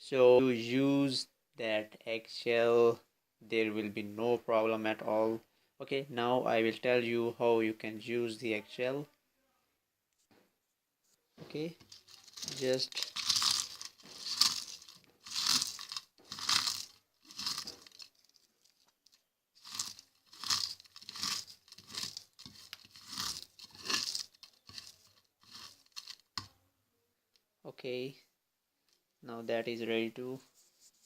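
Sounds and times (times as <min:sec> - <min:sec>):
eggshells being crushed: 0:11.9 - 0:26.5.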